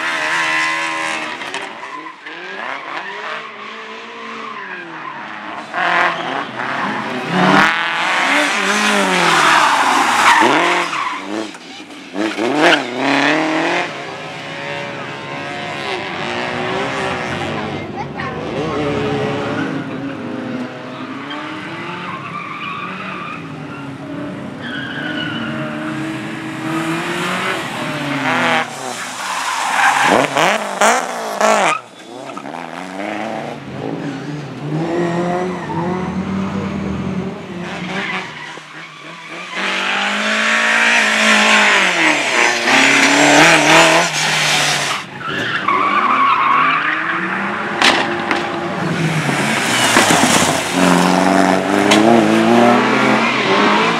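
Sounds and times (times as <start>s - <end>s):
tyres squealing and skidding: 0.0s - 14.4s, 18.2s - 33.3s, 34.0s - 53.9s
car engine revving: 5.3s - 53.9s.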